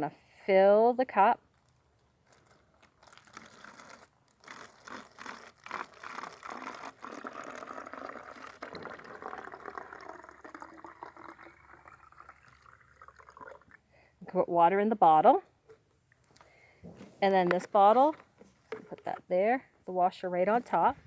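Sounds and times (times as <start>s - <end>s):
water pouring into a cup: 3.0s - 13.9s.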